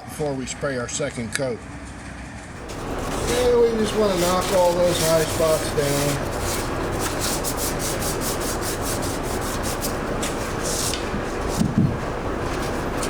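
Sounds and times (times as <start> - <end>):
sandpaper rubbing on steel: 2.6 - 13.0.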